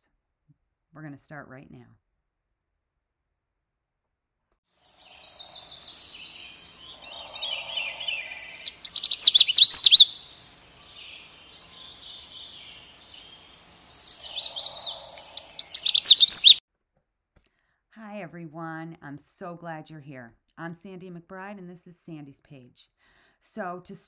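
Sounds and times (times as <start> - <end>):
birds chirping and trilling: 4.8 - 16.6.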